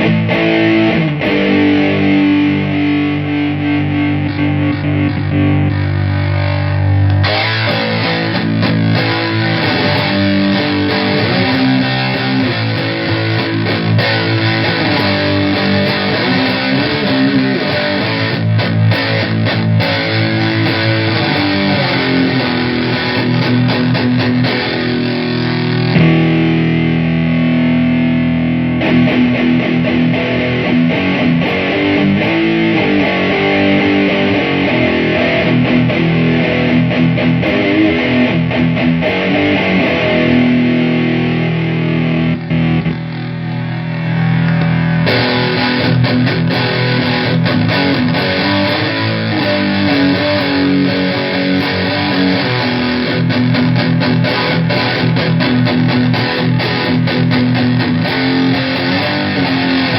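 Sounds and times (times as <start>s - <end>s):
distorted electric guitar riffing: 0.0s - 59.9s.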